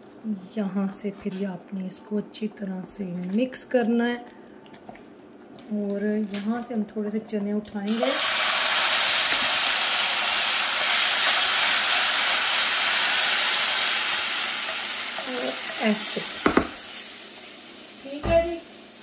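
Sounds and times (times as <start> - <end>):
spices sizzling in hot ghee: 7.9 - 19.0
sharp knock: 16.4 - 16.8.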